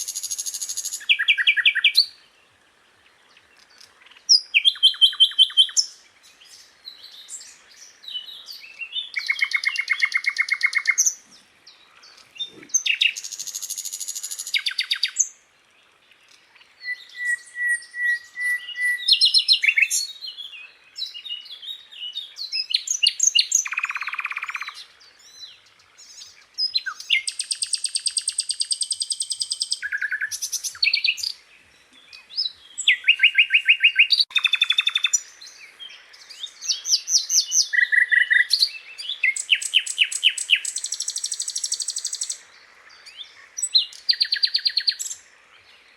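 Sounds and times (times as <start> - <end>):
bird singing high trills: 16.8 - 25.4, 26.1 - 31.4.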